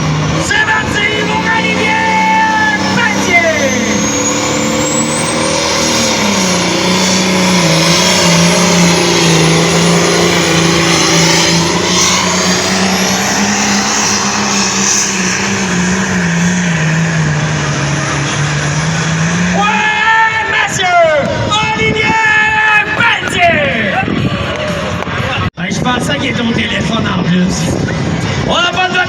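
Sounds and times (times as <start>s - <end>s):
engine at full throttle: 0.0s - 22.0s.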